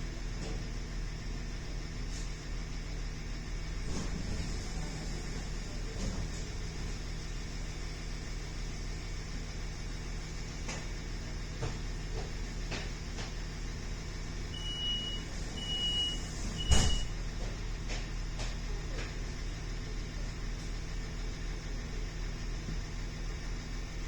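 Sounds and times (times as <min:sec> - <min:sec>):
train carriage rumble: 0:03.7 - 0:09.0
sliding doors thumping shut: 0:03.8 - 0:07.0, 0:15.2 - 0:17.3
door-closing warning: 0:14.6 - 0:17.2.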